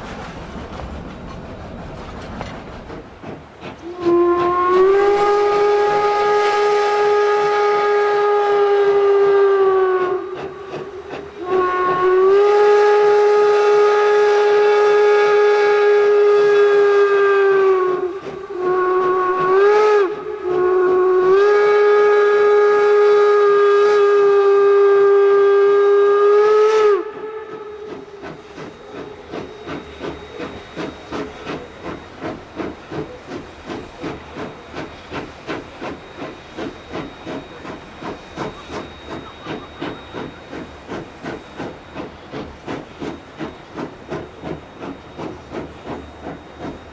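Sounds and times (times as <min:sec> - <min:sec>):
locomotive exhaust chuffing: 0:00.0 - 0:03.8, 0:27.8 - 0:46.9
steam locomotive whistle blasts: 0:03.8 - 0:46.9.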